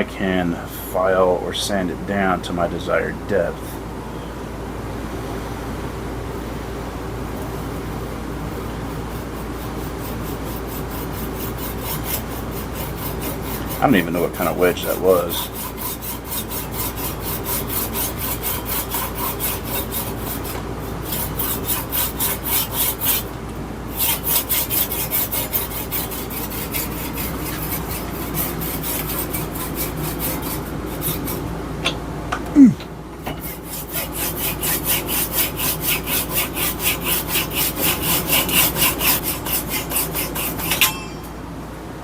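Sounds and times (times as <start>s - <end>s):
hand saw cutting wood: 8.8s - 31.5s, 33.2s - 41.0s.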